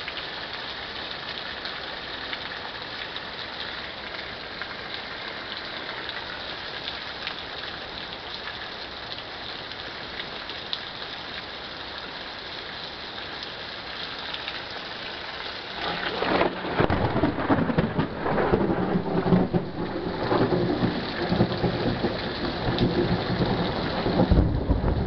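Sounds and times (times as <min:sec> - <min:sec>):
rain hissing: 0:01.9 - 0:25.0
raindrop hits: 0:15.7 - 0:25.0.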